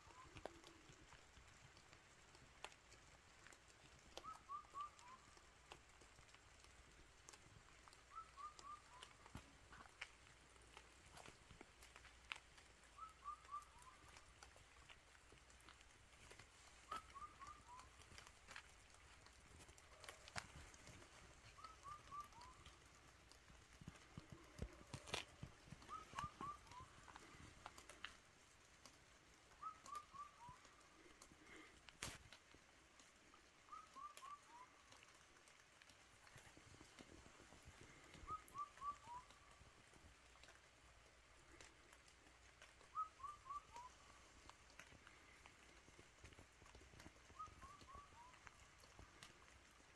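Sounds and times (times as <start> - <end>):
faint rain dripping: 0.0 - 49.9
bird calling: 4.2 - 5.5, 7.8 - 10.2, 12.9 - 23.1, 23.9 - 28.2, 29.6 - 31.8, 33.6 - 35.0, 36.4 - 39.8, 42.6 - 46.0, 46.7 - 49.5
bird whistling notes: 8.1 - 9.2, 13.0 - 14.1, 16.9 - 18.0, 21.6 - 22.6, 25.8 - 27.0, 29.6 - 30.7, 38.3 - 39.4, 42.9 - 44.0, 47.4 - 48.4.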